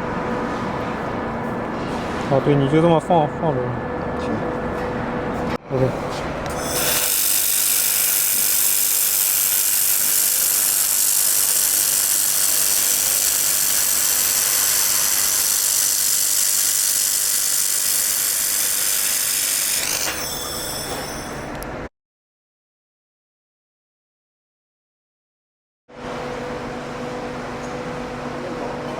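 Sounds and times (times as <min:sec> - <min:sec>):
laser welding machine hissing: 0:06.5 - 0:21.3.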